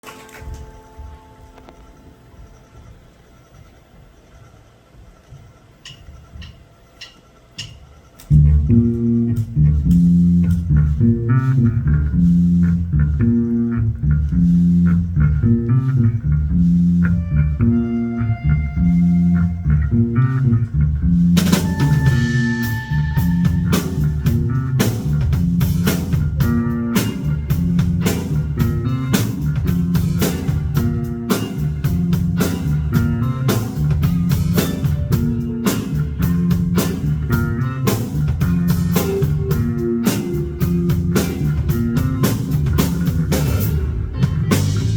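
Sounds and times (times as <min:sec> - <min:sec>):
drum kit and cymbals: 0:05.9 - 0:12.9, 0:14.2 - 0:18.0, 0:21.0 - 0:44.9
rock band playing: 0:08.3 - 0:44.9.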